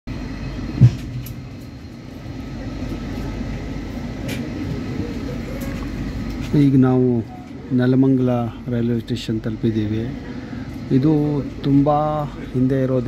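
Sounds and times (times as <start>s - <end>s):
train rumble from inside coach: 0.1s - 13.0s
low thud: 0.7s - 1.5s.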